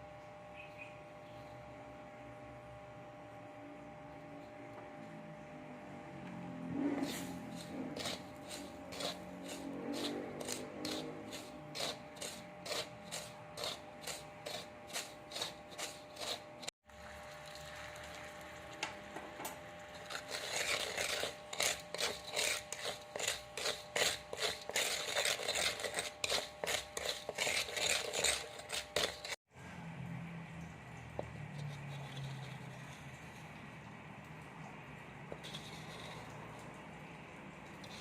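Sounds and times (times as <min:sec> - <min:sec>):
rhythmic scraping strokes: 0:06.8 - 0:16.7, 0:19.9 - 0:29.4, 0:31.5 - 0:33.5, 0:35.4 - 0:36.4, 0:37.7 - 0:38.0.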